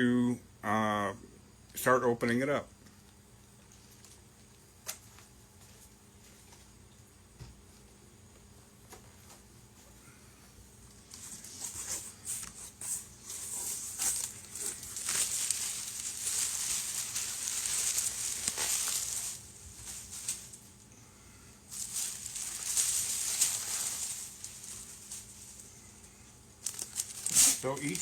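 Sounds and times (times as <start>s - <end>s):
packaging crinkling and tearing: 11.2s - 20.7s, 21.7s - 25.7s, 26.6s - 28.0s.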